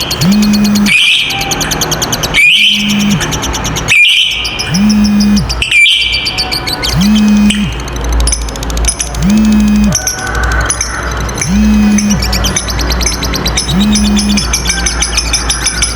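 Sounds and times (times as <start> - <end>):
lovebird chattering song: 0.0 - 15.9.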